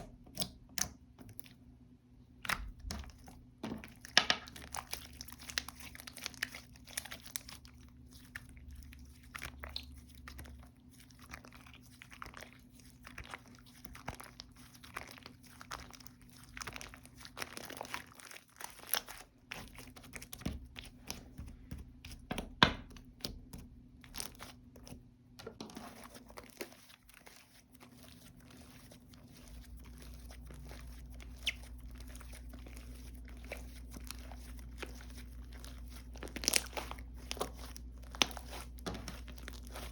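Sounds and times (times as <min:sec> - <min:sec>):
slime squished by hand: 0:25.6 - 0:39.9.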